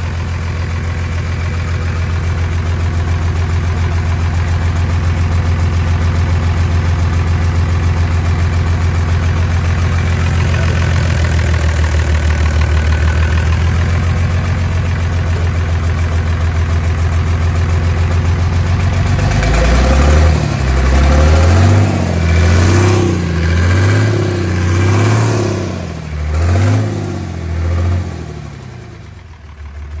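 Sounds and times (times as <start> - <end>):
diesel engine idling and revving: 0.0 - 30.0.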